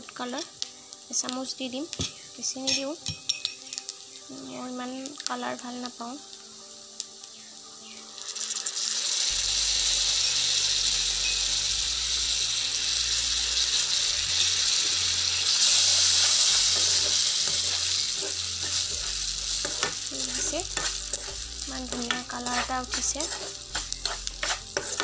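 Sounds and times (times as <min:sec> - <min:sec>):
loud frying sizzle: 0:00.0 - 0:25.0
wooden spatula scraping pan: 0:16.0 - 0:25.0.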